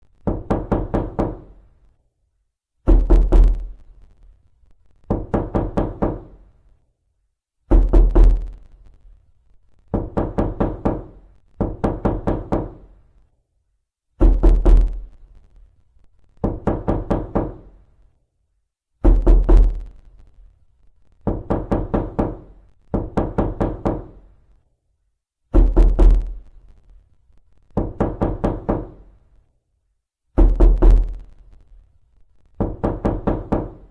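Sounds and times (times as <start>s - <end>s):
knocking on a door: 0.2s - 1.6s, 2.8s - 3.7s, 5.1s - 6.4s, 7.7s - 8.5s, 9.9s - 13.0s, 14.2s - 15.0s, 16.4s - 17.8s, 19.0s - 19.9s, 21.2s - 24.2s, 25.5s - 26.4s, 27.7s - 29.1s, 30.4s - 31.2s, 32.6s - 33.9s.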